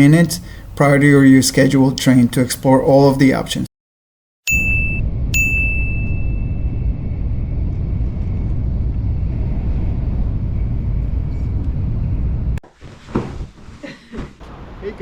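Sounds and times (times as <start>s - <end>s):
train rumbling and rushing: 5.0s - 12.6s.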